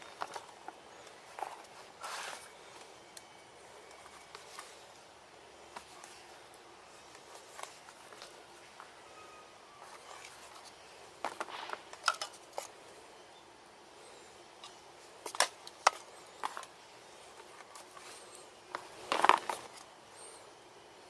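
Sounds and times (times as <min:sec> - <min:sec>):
faint steady hiss: 0:00.0 - 0:21.0
clicks and knocks of handled objects: 0:09.8 - 0:12.8, 0:14.6 - 0:19.9.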